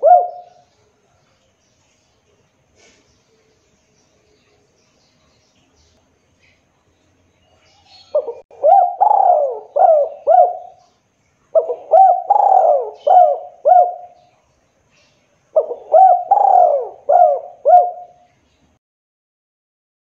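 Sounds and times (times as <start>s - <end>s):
dove cooing: 0.0s - 0.7s, 7.9s - 10.9s, 11.5s - 14.2s, 15.6s - 18.3s.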